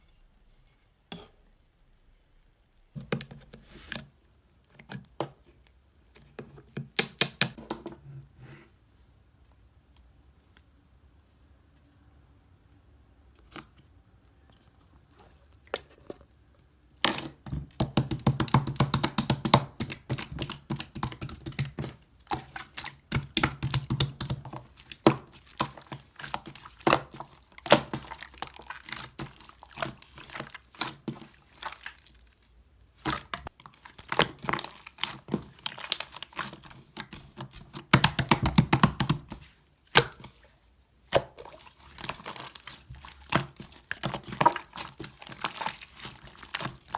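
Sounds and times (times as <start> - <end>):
slime crackling and squelching: 17.4 - 46.9.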